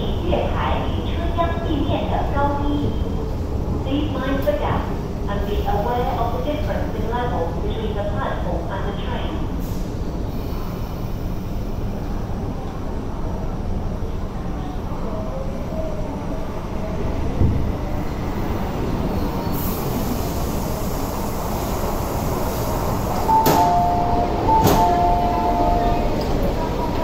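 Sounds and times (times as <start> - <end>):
train car rumble: 0.0 - 27.0
two-tone door chime: 23.3 - 26.1
door release clicks: 24.6 - 24.9.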